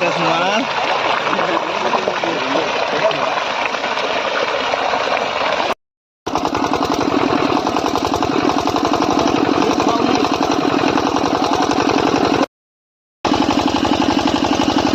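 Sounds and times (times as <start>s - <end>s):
engine knocking: 6.3s - 12.5s, 13.2s - 14.9s.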